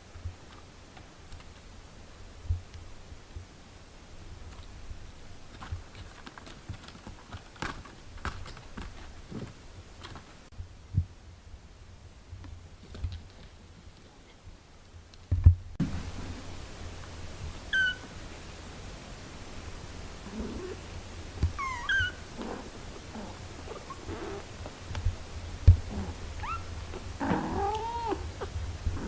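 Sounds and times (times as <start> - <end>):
small clicks and rustles: 0.0 - 1.7, 4.4 - 10.5, 12.4 - 17.2
kitten mewing: 21.6 - 24.5, 25.9 - 29.0.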